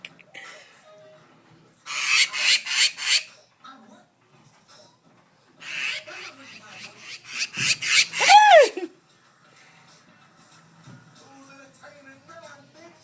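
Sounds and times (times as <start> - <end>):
bird harsh raspy calls: 1.9 - 3.3, 5.6 - 8.5.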